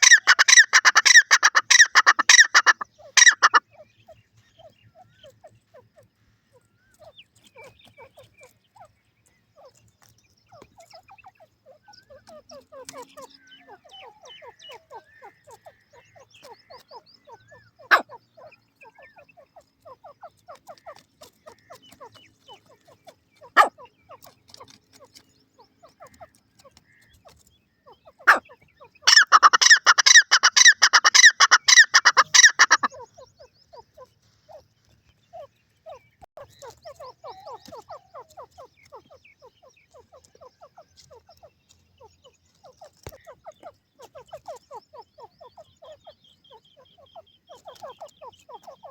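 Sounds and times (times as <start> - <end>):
faint chattering bird calls: 0.0 - 48.9
francolin calling: 0.0 - 48.9.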